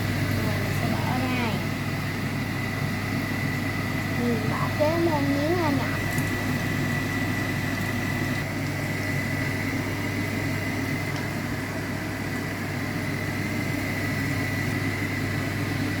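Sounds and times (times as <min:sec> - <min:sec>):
machine hum with high whine: 0:00.0 - 0:16.0.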